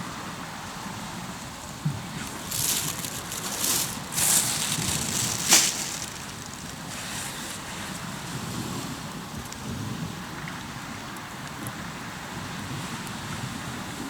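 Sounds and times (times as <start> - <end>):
campfire crackling: 1.6 - 8.4.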